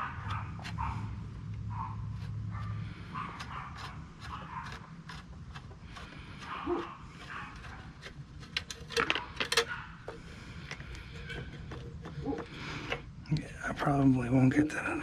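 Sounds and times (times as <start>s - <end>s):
metal hand tools clinking: 8.5s - 9.7s.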